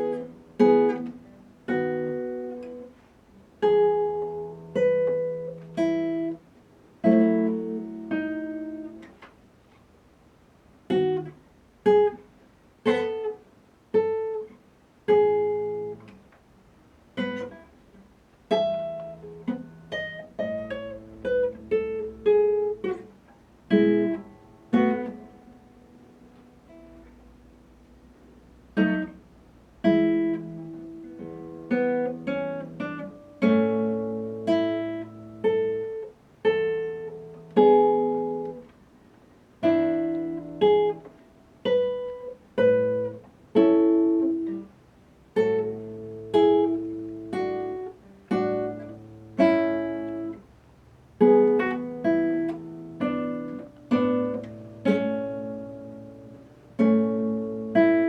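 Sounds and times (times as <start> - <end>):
acoustic guitar slow tune: 0.0 - 58.0.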